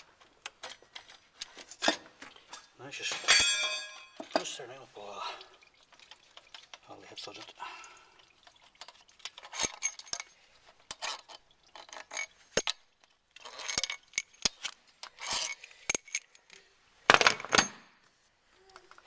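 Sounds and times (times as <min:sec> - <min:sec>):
metal hand tools clinking: 0:00.4 - 0:04.6, 0:08.8 - 0:17.8.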